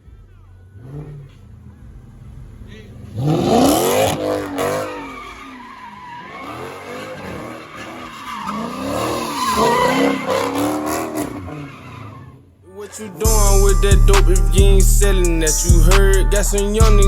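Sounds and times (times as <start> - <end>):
car engine revving hard: 0.0 - 12.5
tyre squeal from wheelspin: 0.8 - 12.6.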